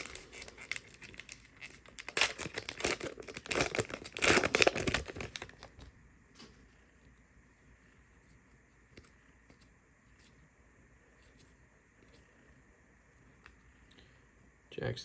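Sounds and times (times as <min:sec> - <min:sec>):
card pack wrapper crinkling: 0:00.0 - 0:05.8.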